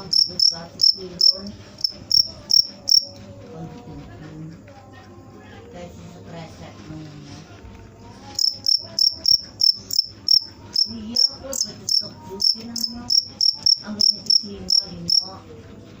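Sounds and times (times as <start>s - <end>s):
cricket chirping: 0.0s - 3.2s, 8.3s - 15.3s.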